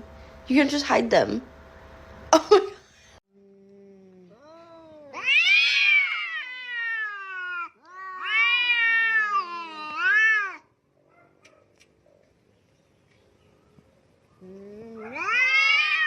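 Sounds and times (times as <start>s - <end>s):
cat yowling meows: 4.4s - 10.7s, 14.8s - 16.0s.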